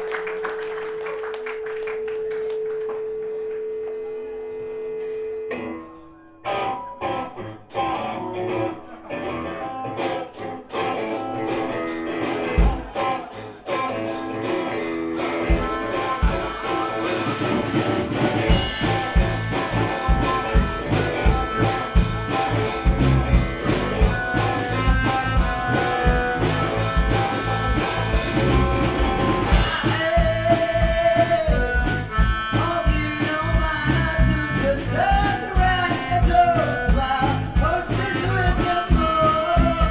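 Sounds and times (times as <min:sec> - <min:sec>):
guitar: 0:00.0 - 0:39.9
bass: 0:05.7 - 0:39.9
drums: 0:06.4 - 0:39.9
accordion: 0:15.2 - 0:36.0.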